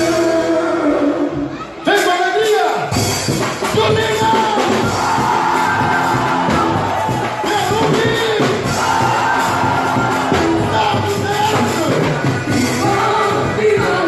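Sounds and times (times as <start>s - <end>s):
band playing dance music: 0.0s - 14.0s
lead singer singing: 3.7s - 14.0s.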